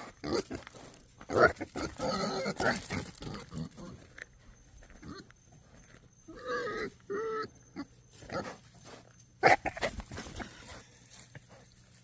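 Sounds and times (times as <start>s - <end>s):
pig calling: 0.0s - 4.1s, 6.3s - 8.6s, 9.4s - 10.5s.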